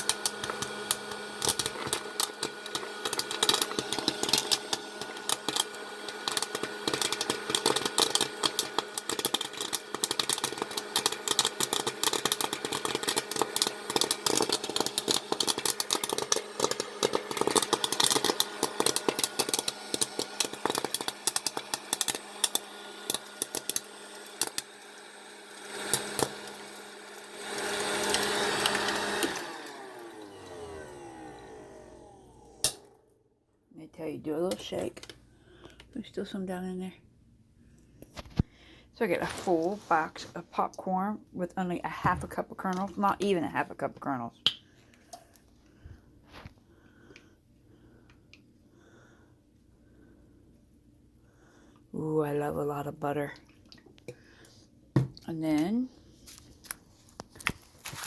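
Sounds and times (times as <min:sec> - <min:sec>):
popcorn popping: 0:00.0 - 0:33.1
popcorn maker hum: 0:00.0 - 0:36.8, 0:37.6 - 0:58.0.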